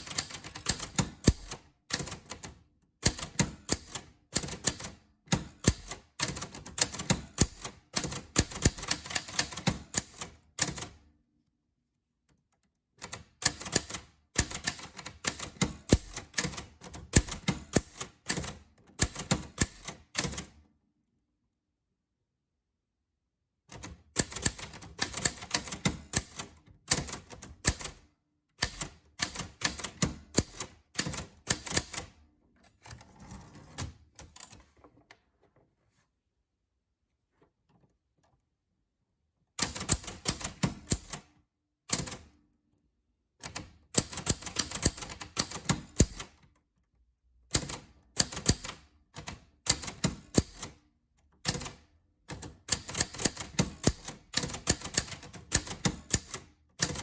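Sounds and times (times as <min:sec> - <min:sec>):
typewriter keys clacking: 0:00.0 - 0:10.9, 0:13.0 - 0:20.5, 0:23.8 - 0:28.0, 0:43.5 - 0:46.4, 0:51.4 - 0:57.0.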